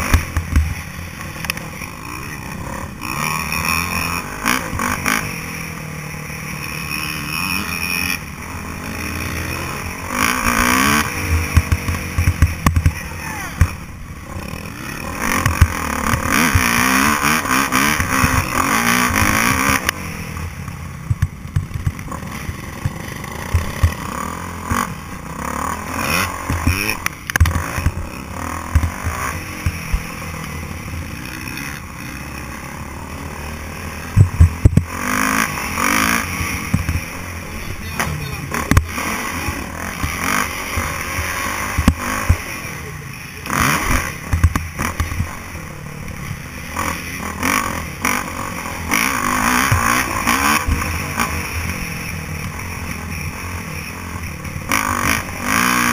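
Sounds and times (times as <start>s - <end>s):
motocross engine revving: 0.0s - 55.9s.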